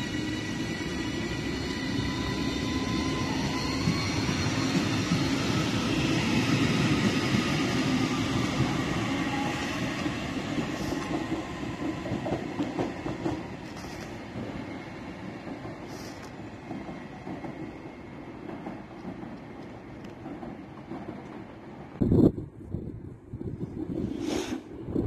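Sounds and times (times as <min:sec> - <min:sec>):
train wheels rumbling on rail: 0:00.0 - 0:25.0
rail clicks: 0:02.8 - 0:22.0.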